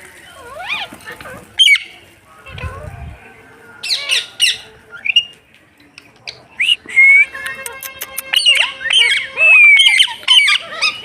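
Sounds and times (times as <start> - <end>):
parrot squawking: 6.6 - 11.0
parrot whistled calls: 6.6 - 11.0.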